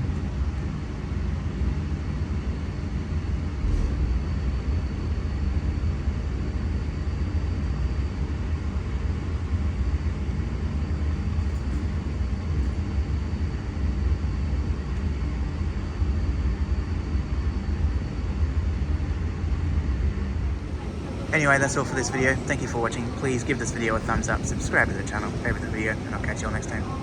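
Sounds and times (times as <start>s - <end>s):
electric train rumbling: 3.4s - 6.1s, 20.2s - 27.0s
faint high whine: 20.3s - 27.0s.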